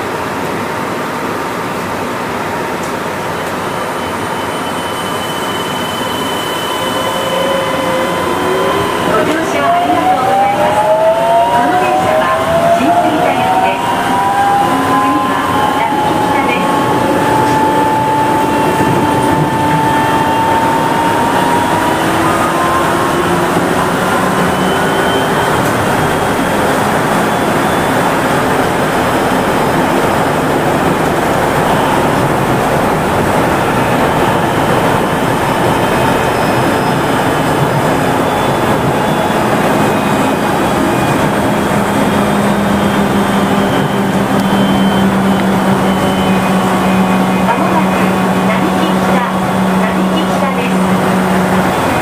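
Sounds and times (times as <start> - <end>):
train tyres rumbling on guideway: 15.0 - 52.0.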